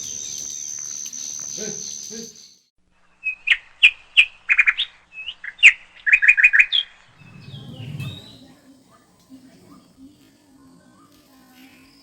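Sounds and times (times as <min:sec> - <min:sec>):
bird chirping: 0:03.2 - 0:08.6
low rumble: 0:07.1 - 0:08.6.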